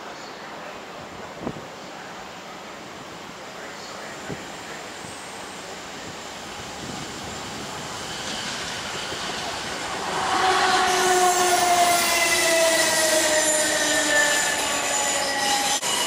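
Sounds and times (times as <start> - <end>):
electric train running: 6.6 - 16.0
high whining tones sliding down: 7.8 - 16.0.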